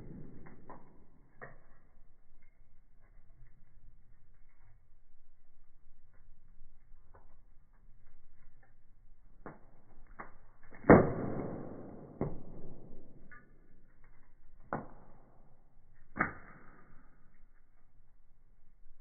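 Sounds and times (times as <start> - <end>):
sharp pops of burning wood: 0.0 - 3.5, 6.9 - 17.9
firewood crackling: 0.0 - 19.0.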